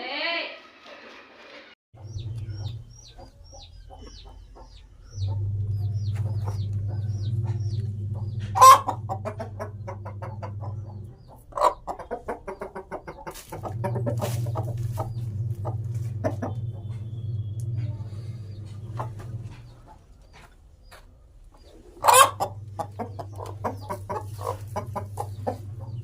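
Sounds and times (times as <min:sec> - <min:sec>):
rooster clucking: 0:02.0 - 0:26.0
steady low hum: 0:02.0 - 0:26.0
rooster squawk: 0:08.6 - 0:09.1, 0:22.0 - 0:22.5.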